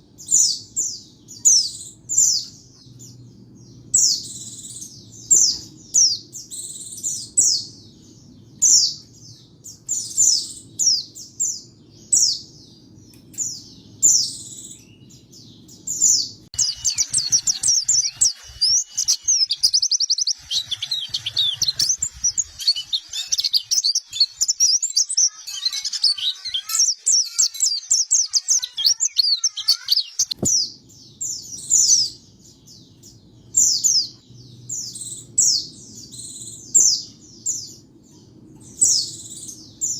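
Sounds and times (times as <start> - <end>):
bird chirping and trilling song: 0.0 - 39.9.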